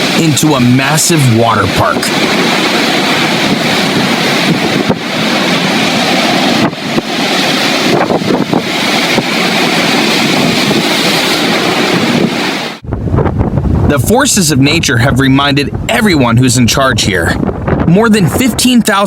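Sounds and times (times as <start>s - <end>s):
crashing waves: 0.0s - 12.8s
wind buffeting microphone: 0.0s - 19.0s.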